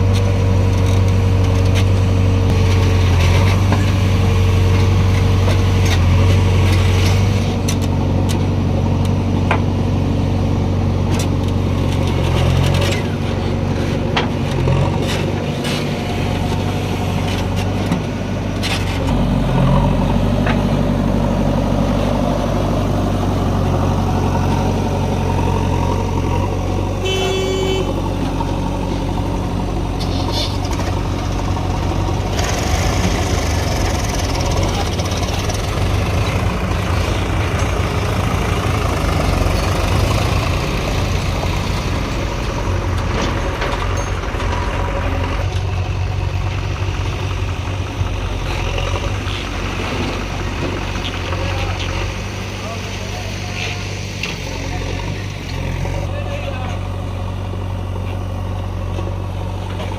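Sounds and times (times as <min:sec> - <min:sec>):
heavy diesel machinery running: 0:00.0 - 0:59.9
brief high tone: 0:27.0 - 0:27.9
knocks and clatters: 0:42.9 - 0:45.7.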